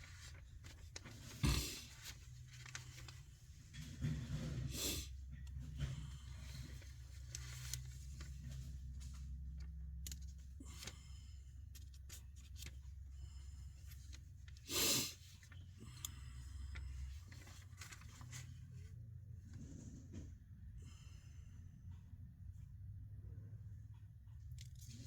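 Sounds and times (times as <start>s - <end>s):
paper page turning: 0.0s - 3.2s, 17.2s - 18.6s.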